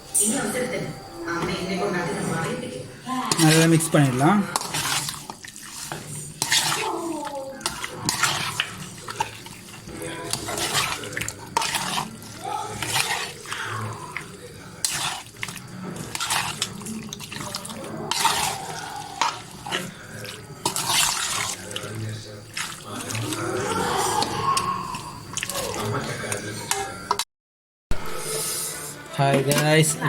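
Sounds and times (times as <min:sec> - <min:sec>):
water splashing and sloshing: 0:03.2 - 0:26.4.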